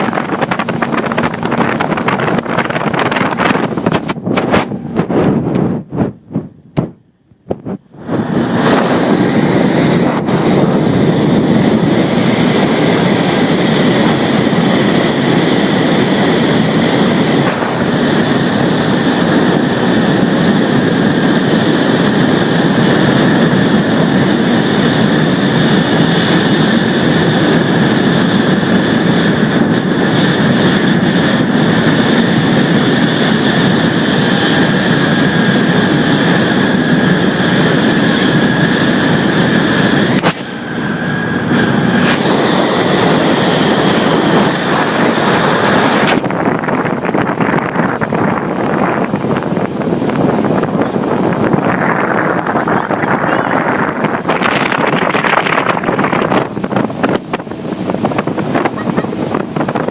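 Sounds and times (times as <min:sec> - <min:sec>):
motorboat engine drone: 0:00.0 - 0:59.9
wind on microphone: 0:00.0 - 0:59.9.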